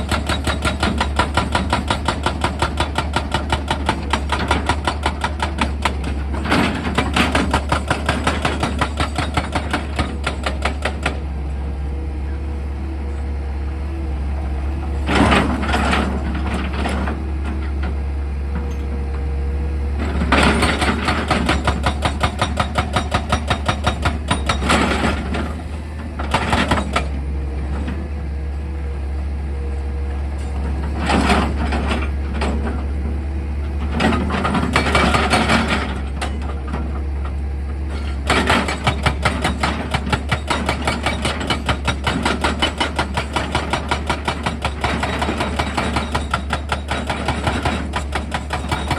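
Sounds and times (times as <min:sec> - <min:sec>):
hydraulic drill hammering: 0:00.0 - 0:11.3, 0:20.2 - 0:25.4, 0:38.0 - 0:48.9
excavator engine humming: 0:00.0 - 0:48.9.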